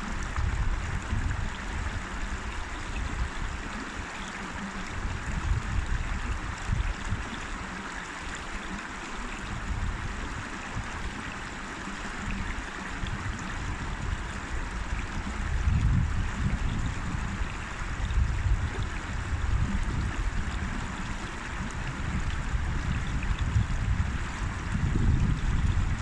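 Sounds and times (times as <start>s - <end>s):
river water rushing: 0.0s - 15.8s, 17.0s - 22.8s.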